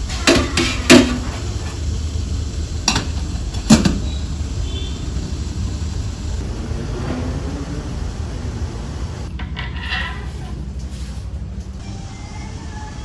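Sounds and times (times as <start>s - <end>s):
steady low rumble: 1.5s - 9.3s.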